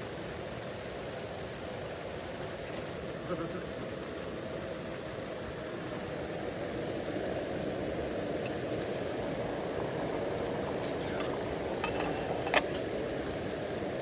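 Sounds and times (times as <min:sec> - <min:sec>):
light clinks: 0:11.1 - 0:12.9.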